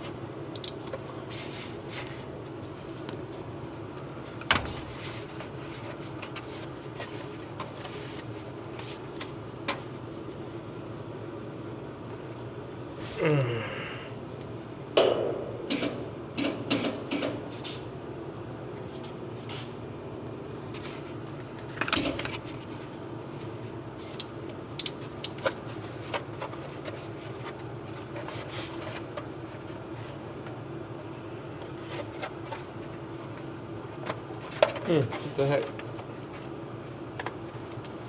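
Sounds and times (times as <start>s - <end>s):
low mechanical hum: 0.0s - 38.0s
tools and parts clicking and knocking: 0.5s - 1.0s, 24.1s - 25.5s.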